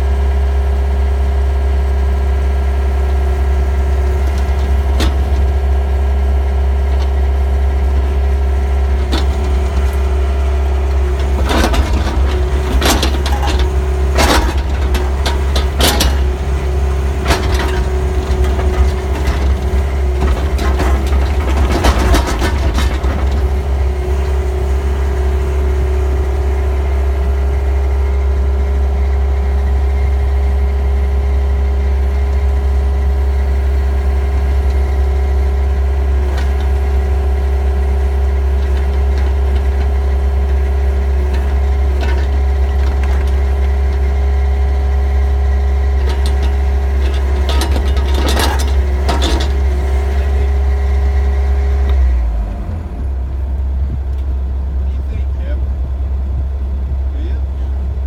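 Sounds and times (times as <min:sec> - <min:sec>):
excavator diesel engine running: 0:00.0 - 0:58.0
knocks and clanks: 0:04.1 - 0:05.7, 0:06.8 - 0:24.6, 0:36.2 - 0:44.1, 0:45.8 - 0:50.9.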